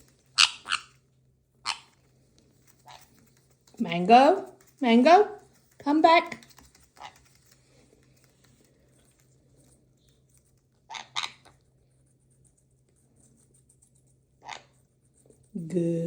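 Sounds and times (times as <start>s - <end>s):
bird claws and beak clicking: 1.7s - 4.8s, 5.4s - 11.6s.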